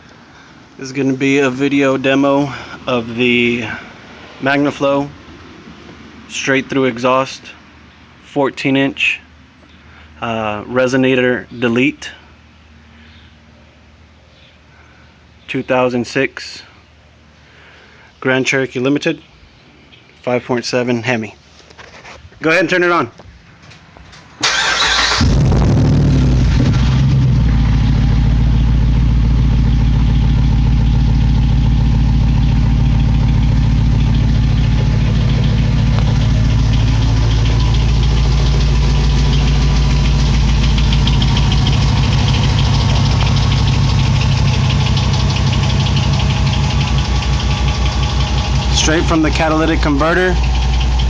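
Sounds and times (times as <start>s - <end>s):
car engine idling: 0.0s - 8.2s, 24.4s - 51.0s
engine starter cranking: 24.4s - 27.4s, 32.8s - 51.0s.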